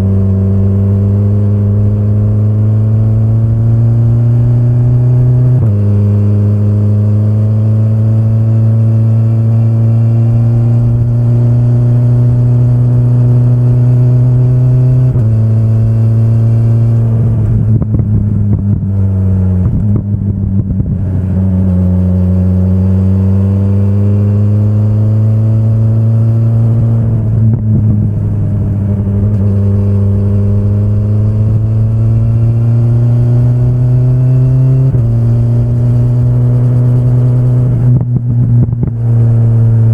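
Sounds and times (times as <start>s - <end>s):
engine crackling on overrun: 0.0s - 39.9s
motorcycle engine accelerating: 0.0s - 39.9s.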